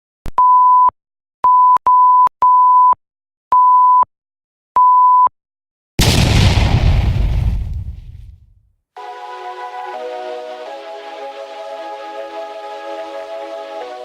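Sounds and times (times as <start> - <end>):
loud boom: 6.0 - 8.5.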